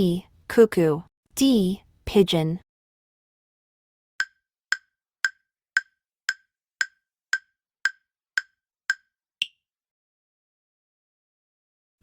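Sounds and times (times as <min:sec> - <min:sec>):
clock ticking: 0:04.2 - 0:09.6.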